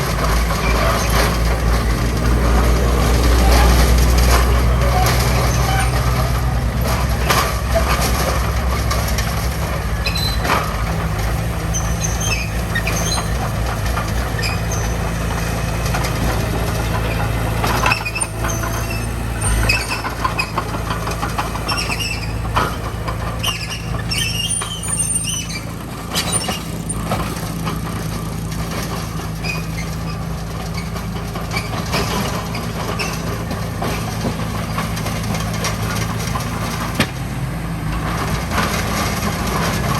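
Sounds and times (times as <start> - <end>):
diesel construction machinery running: 0.0 - 39.9
short high squeaks: 3.4 - 6.4, 10.0 - 10.7, 11.7 - 13.5, 21.6 - 22.8, 23.4 - 26.8.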